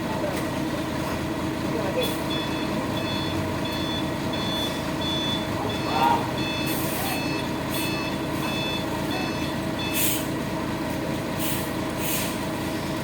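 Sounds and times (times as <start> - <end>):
truck engine running: 0.0 - 13.0
reversing alarm beeping: 2.2 - 10.2.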